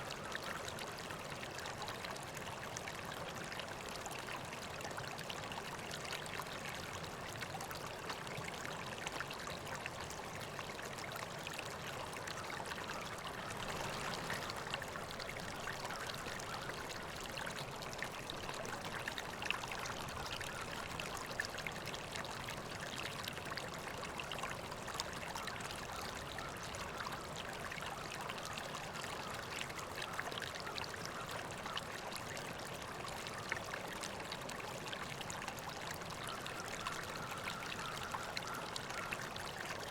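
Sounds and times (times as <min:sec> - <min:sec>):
river water flowing over rocks: 0:10.0 - 0:39.9.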